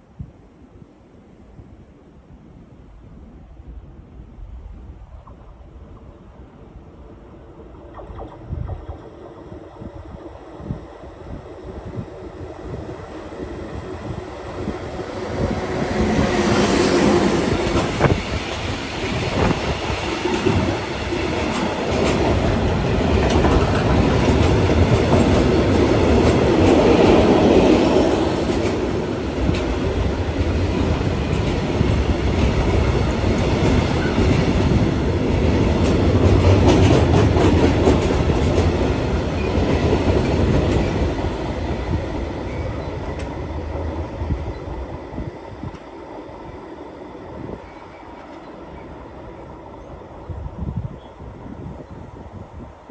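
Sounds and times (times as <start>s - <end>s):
train passing on rails: 0.0s - 52.9s.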